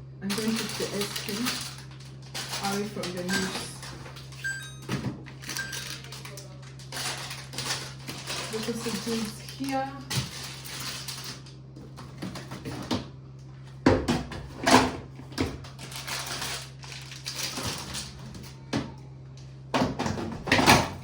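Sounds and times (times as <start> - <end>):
fridge low hum: 0.0 - 21.0
plastic rustling: 0.2 - 4.5, 5.2 - 12.9, 15.3 - 18.6.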